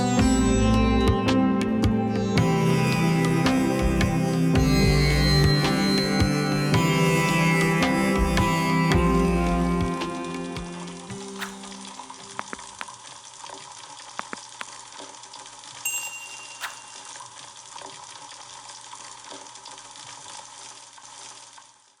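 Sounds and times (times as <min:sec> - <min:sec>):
short high ring: 0:15.8 - 0:17.3.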